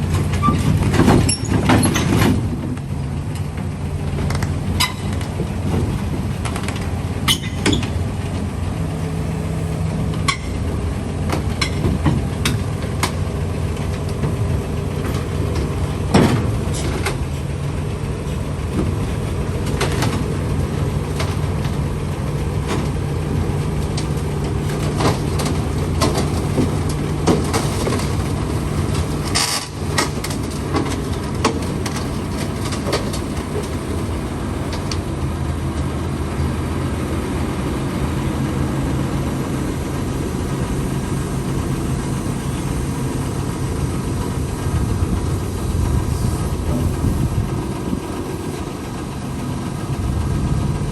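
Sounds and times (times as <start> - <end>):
machinery engine humming: 0.0 - 50.9
knocks and clanks: 0.1 - 8.4, 11.2 - 17.4, 18.2 - 21.9, 22.5 - 35.1, 44.7 - 50.4.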